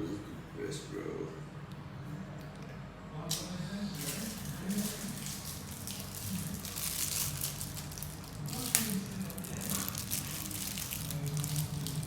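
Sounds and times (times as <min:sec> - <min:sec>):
rustling and crinkling: 0:04.0 - 0:12.0.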